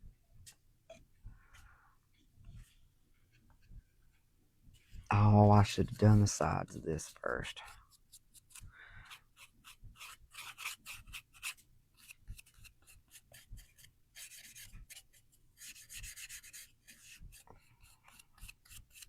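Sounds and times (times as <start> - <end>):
scratchy paintbrush strokes: 1.5 - 19.0.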